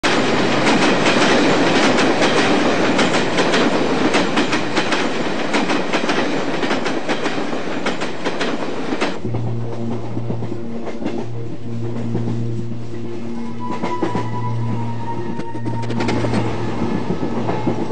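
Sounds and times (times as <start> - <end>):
train rumble: 0.0 - 17.9
train wheels clacking over rail joints: 0.1 - 12.5, 15.8 - 17.9
low held tone: 9.2 - 17.9.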